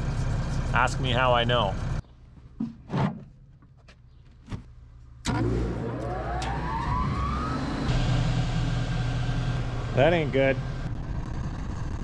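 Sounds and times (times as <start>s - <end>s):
machine whining as it spins up: 5.3s - 12.0s.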